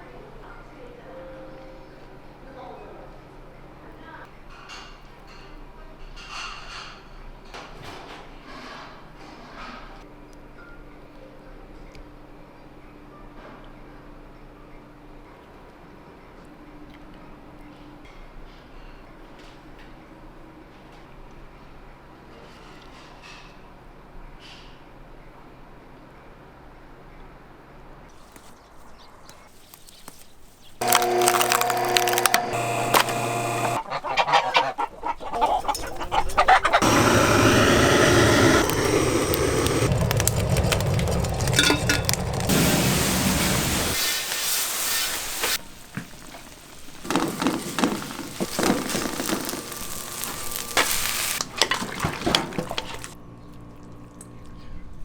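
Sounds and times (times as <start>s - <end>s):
poultry flock calling: 32.7s - 37.6s.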